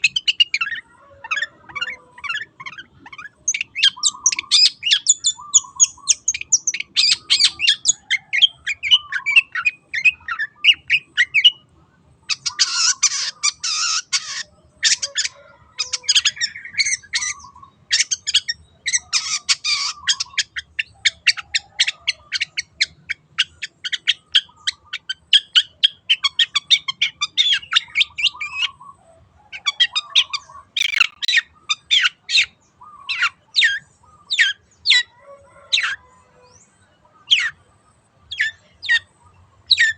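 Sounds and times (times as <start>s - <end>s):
harsh rasping bird calls: 30.2s - 31.9s
bird singing chirps and whistles: 30.8s - 31.3s.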